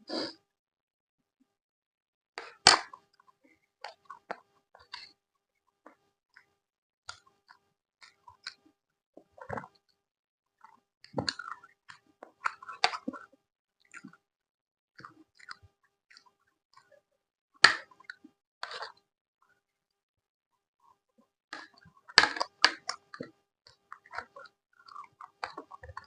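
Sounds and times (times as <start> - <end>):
chewing food: 3.8 - 5.2, 7.1 - 8.6, 10.6 - 14.2, 15.0 - 17.0, 21.6 - 26.0.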